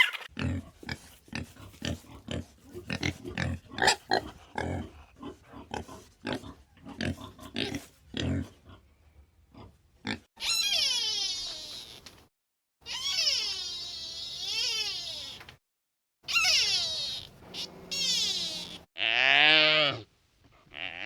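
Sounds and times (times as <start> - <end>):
animal long falling call: 16.3 - 18.8
animal grunting: 16.3 - 18.9.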